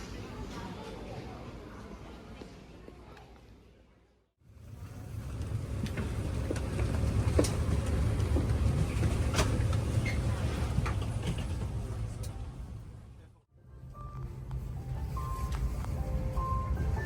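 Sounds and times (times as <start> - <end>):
airplane cabin rumble: 4.6 - 13.2.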